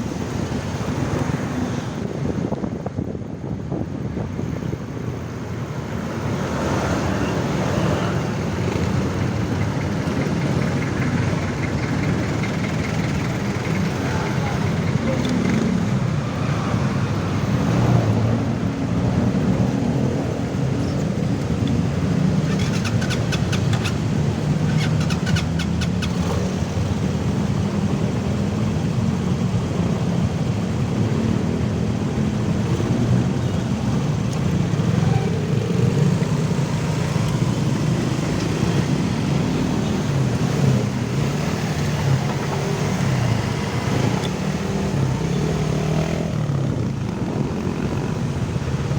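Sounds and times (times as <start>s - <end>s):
road and traffic rumble: 0.0s - 48.9s
rapid ticks: 22.4s - 26.4s.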